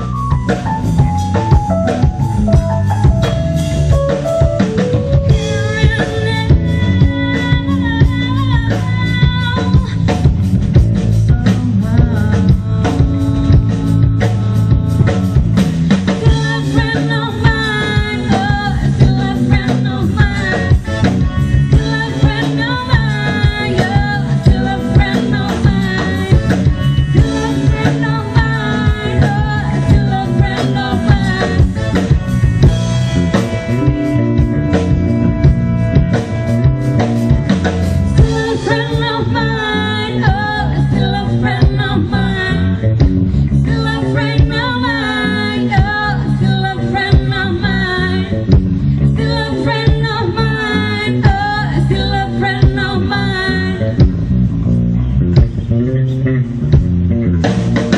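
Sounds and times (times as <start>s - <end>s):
bass: 0.0s - 57.9s
drum kit beat: 0.0s - 57.9s
electric guitar: 0.0s - 57.9s
keyboard: 0.0s - 57.9s
lead vocal singing: 11.2s - 32.6s, 38.0s - 42.8s, 43.5s - 48.3s, 49.0s - 54.0s.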